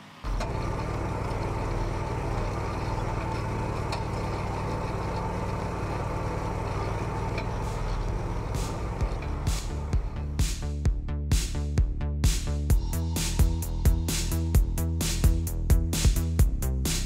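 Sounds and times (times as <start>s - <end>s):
tractor engine under load: 0.0s - 10.7s.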